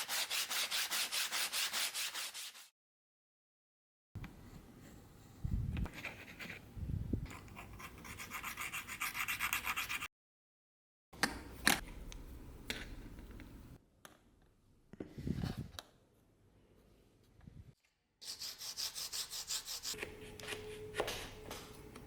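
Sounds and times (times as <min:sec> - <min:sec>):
rubbing strokes on hard surface: 0:00.0 - 0:02.7, 0:18.2 - 0:20.0.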